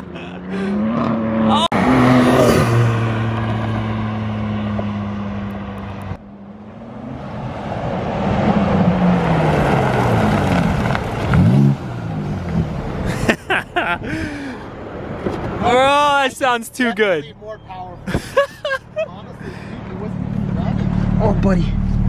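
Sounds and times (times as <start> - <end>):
car engine revving: 0.2 - 13.1.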